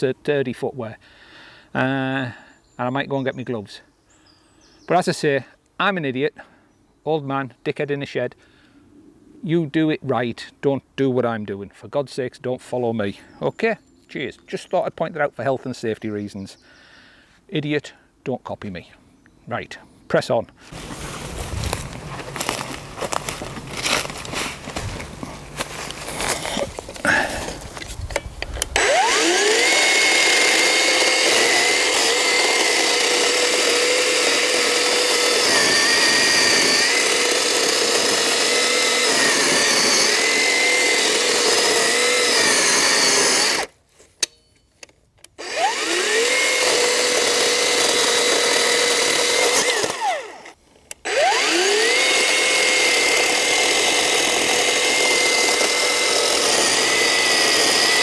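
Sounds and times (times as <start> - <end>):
electric chainsaw whining: 20.7 - 44.3, 45.2 - 58.0
chain cutting into log: 20.7 - 44.4, 45.4 - 58.0.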